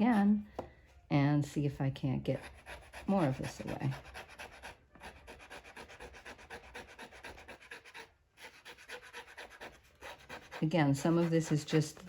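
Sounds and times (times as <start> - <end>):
blade scraping parchment: 2.5 - 12.0.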